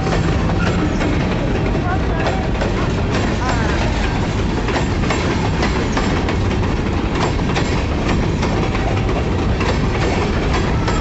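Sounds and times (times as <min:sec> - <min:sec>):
freight train rolling past: 0:00.0 - 0:11.0
wheels clacking over rail joints: 0:00.0 - 0:11.0.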